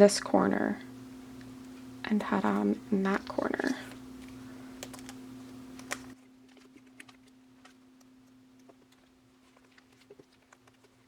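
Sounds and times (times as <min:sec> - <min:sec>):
low hum: 0:00.2 - 0:08.8
cards sliding into plastic sleeves: 0:03.1 - 0:06.2.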